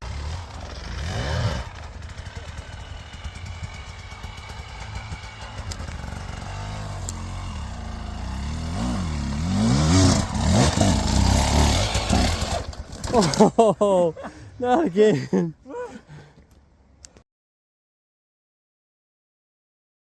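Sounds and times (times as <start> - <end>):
dirt bike engine revving: 0.0 - 13.6.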